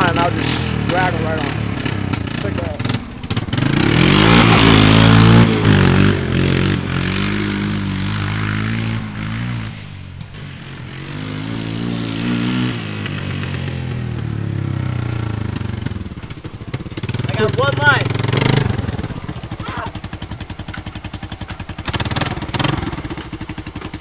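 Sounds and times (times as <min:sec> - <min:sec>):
dirt bike engines revving: 0:00.0 - 0:24.0.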